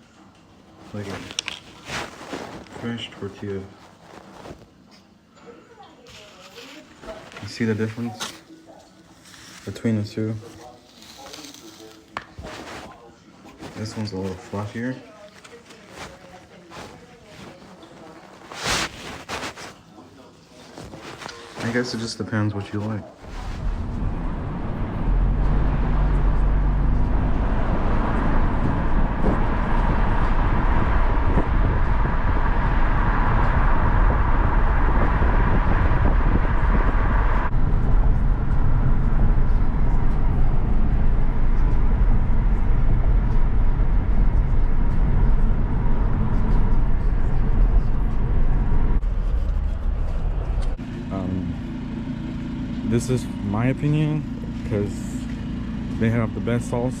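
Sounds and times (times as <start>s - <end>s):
car engine and road rumble: 22.8s - 57.0s.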